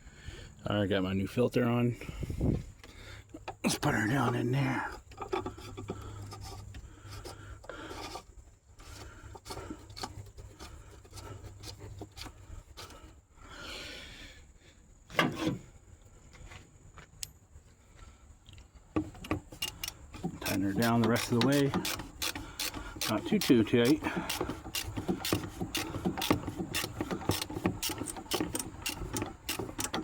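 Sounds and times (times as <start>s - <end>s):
cap scraping while threaded in: 3.4s - 13.1s, 15.1s - 15.6s, 19.0s - 30.0s.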